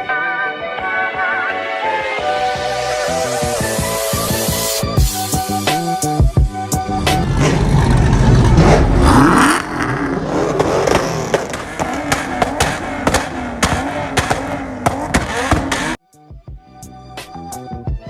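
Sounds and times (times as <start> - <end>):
car engine revving: 2.2 - 4.8, 6.6 - 16.0
sharp cracks: 7.0 - 16.0.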